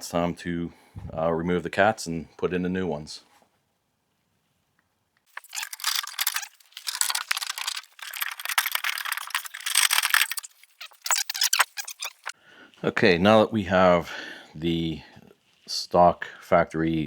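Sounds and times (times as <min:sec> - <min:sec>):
metal parts rattling and scraping: 0:05.3 - 0:12.4.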